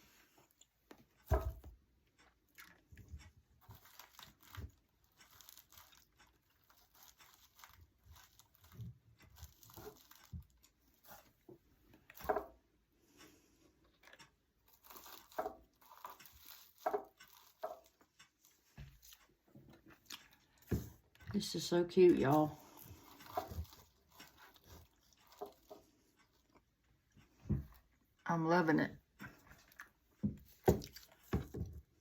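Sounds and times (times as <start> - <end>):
hay rustling and crinkling: 3.6 - 11.2, 22.3 - 25.8.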